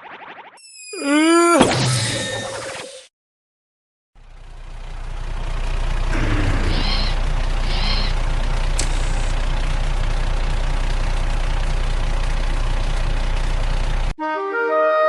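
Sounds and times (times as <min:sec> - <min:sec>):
truck engine idling: 0:04.2 - 0:14.2
sharp click: 0:08.7 - 0:09.2.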